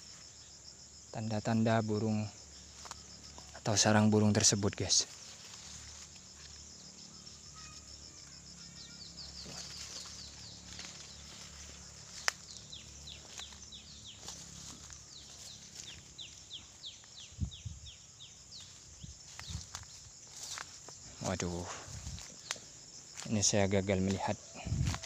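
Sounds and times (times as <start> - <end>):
high insect hum: 0.0 - 25.0
bird chirping: 6.8 - 19.6.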